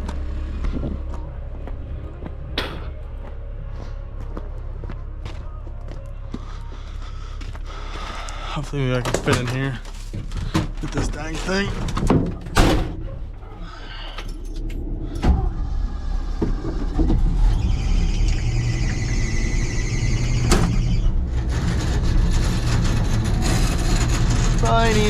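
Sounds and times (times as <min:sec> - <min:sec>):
dump truck engine running: 0:00.0 - 0:25.0
high squeal: 0:15.5 - 0:25.0.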